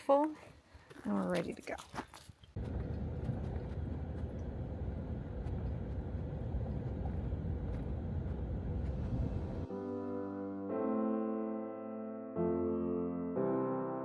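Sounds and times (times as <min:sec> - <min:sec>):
truck engine and road noise: 0:02.6 - 0:09.7
piano music: 0:09.4 - 0:14.0.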